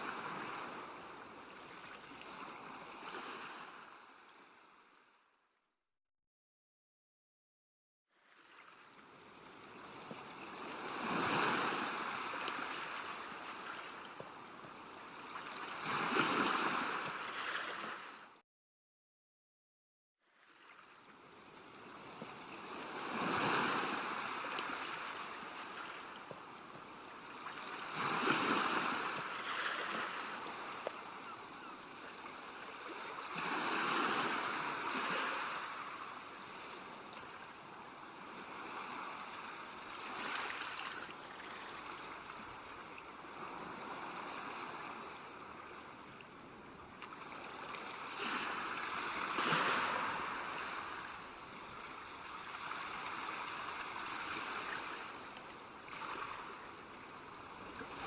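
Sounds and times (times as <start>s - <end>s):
constant wash of surf: 0.0s - 4.1s, 8.4s - 18.4s, 20.8s - 58.0s
ocean waves breaking: 9.5s - 18.2s, 22.0s - 37.5s, 47.1s - 55.2s.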